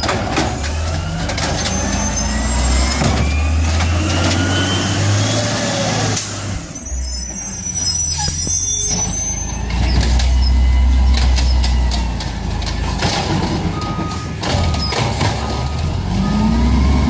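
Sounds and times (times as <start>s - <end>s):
garbage truck engine running: 0.0s - 17.0s
knocks and clatter: 8.9s - 15.9s.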